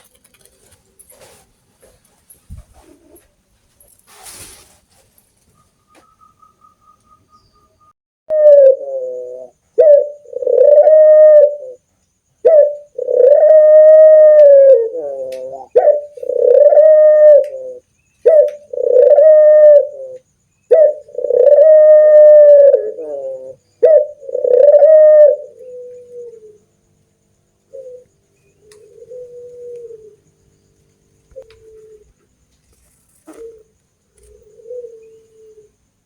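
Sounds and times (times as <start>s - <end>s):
doves cooing: 8.3s - 11.8s, 12.4s - 27.0s, 27.6s - 35.9s.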